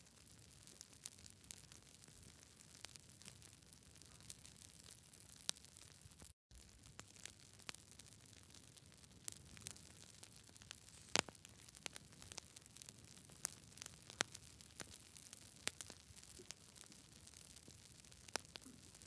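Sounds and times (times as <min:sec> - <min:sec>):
campfire crackling and popping: 0:00.1 - 0:19.0
faint hiss: 0:10.8 - 0:11.3.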